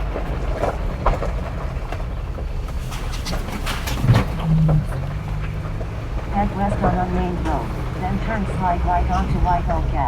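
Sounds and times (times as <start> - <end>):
vehicle rumbling on dirt road: 0.0 - 10.0
knocks and rattles: 0.1 - 7.0.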